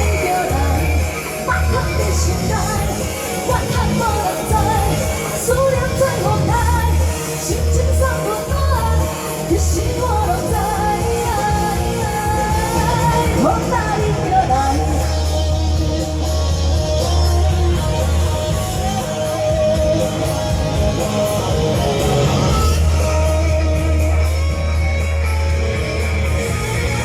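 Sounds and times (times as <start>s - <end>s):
woman singing pop song: 0.0s - 21.1s
amplified band with bass beat: 0.0s - 27.0s.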